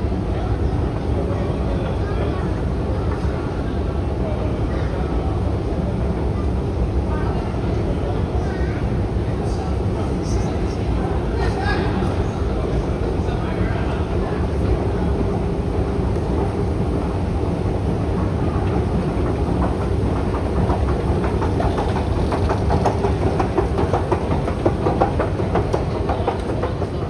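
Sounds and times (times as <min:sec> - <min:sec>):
train rumbling: 0:00.0 - 0:27.0
train wheels clattering: 0:14.2 - 0:27.0.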